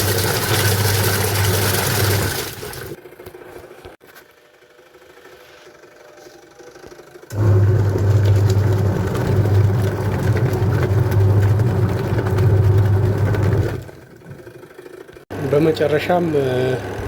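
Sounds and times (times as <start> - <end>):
washing machine motor humming: 0.0 - 3.4, 7.2 - 17.0.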